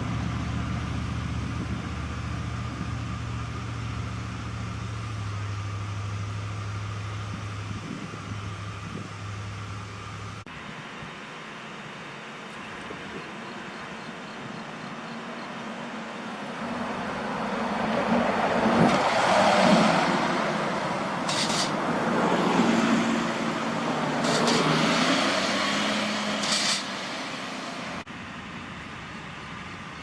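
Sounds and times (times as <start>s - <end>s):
large trucks driving past: 0.0s - 30.0s
short air hisses: 21.3s - 21.8s, 26.3s - 27.0s.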